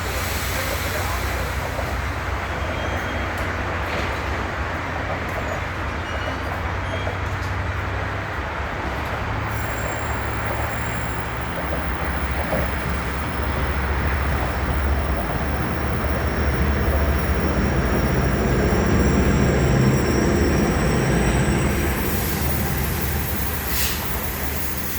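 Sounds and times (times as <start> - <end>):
train wheels rumbling on rail: 0.0 - 24.9
high-pitched wheel squeal: 9.5 - 24.9.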